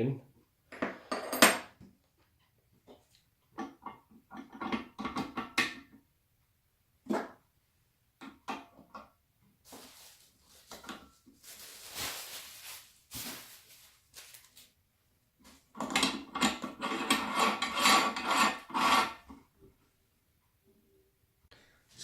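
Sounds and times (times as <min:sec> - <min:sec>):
parts clattering: 0:09.7 - 0:14.7
parts rubbing and scraping: 0:15.8 - 0:19.3.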